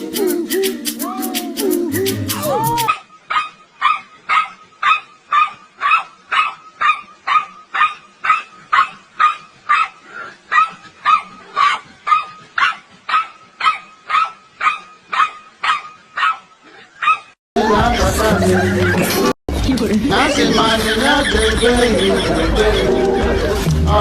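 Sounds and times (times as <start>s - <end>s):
dog barking steadily: 2.8s - 17.4s.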